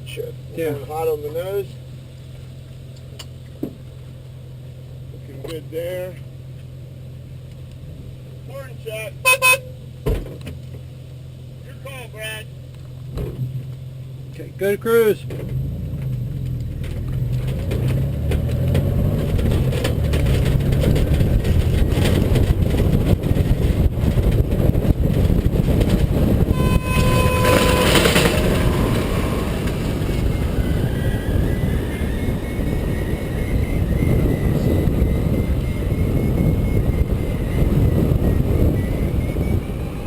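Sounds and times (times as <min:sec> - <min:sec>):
wind buffeting microphone: 0:16.6 - 0:40.0
short beep: 0:26.5 - 0:30.6.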